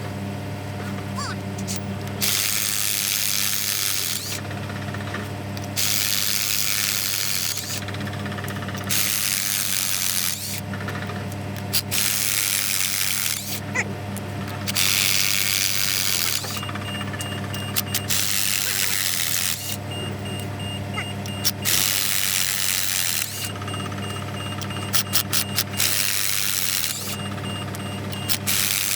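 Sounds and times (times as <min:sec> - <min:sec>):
steady machine hum: 0:00.0 - 0:28.9
power tool hissing: 0:17.7 - 0:19.8, 0:21.2 - 0:28.9.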